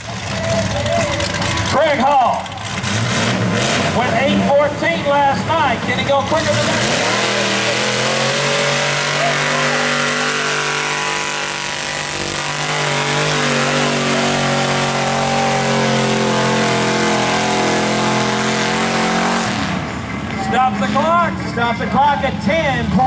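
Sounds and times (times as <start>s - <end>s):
truck engine at high revs: 0.0s - 23.0s.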